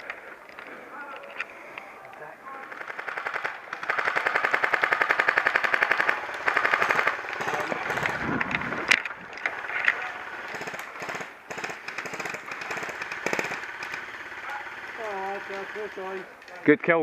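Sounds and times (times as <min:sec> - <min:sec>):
airsoft rifle bursts: 0:00.0 - 0:16.7
airsoft single shots and clicks: 0:02.7 - 0:14.3.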